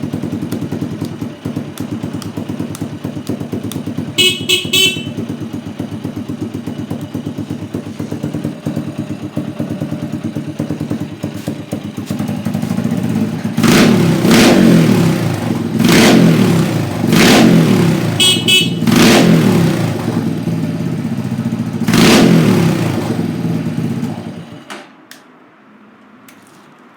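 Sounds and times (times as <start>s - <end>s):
motorcycle engine idling and revving: 0.0s - 24.7s
horn beep: 4.1s - 5.5s, 18.0s - 19.2s.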